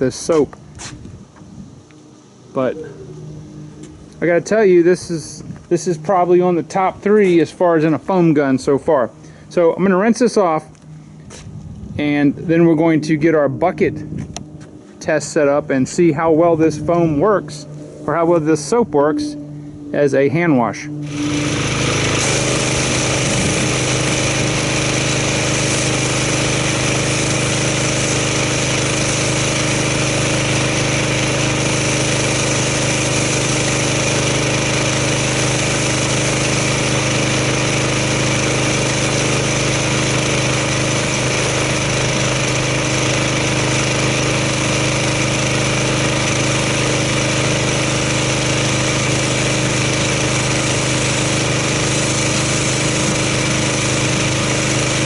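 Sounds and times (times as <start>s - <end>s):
pressure washer engine running: 0.0s - 55.0s
water spray rinsing car: 21.0s - 55.0s.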